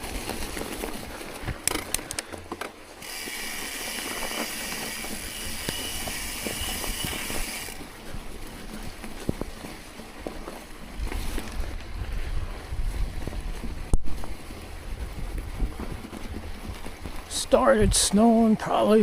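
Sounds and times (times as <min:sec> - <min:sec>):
freewheel clicks: 0:03.0 - 0:07.8
bicycle freewheel buzzing: 0:03.0 - 0:07.9.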